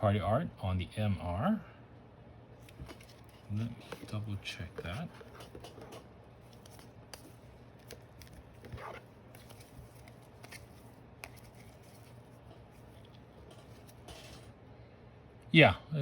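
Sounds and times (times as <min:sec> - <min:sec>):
low room hum: 0:00.0 - 0:16.0
card scraping on card: 0:02.7 - 0:14.5.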